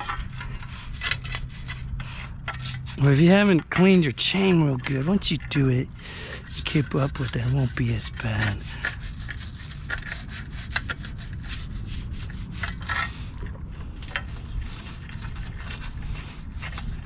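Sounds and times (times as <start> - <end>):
scrubbing chain by hand: 0.0 - 13.1.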